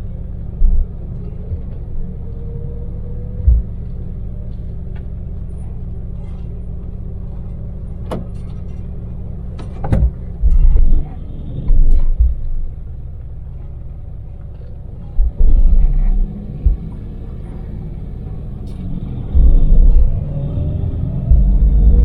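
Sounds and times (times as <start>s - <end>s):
low road rumble: 0.0s - 22.0s
van engine running: 0.0s - 22.0s
heavy low thumps: 0.4s - 2.4s, 3.0s - 4.2s, 9.7s - 13.6s, 15.0s - 22.0s.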